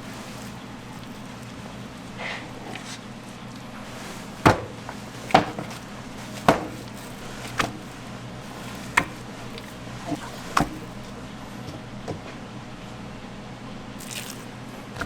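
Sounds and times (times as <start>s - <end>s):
knife chopping on cutting board: 4.0s - 11.1s.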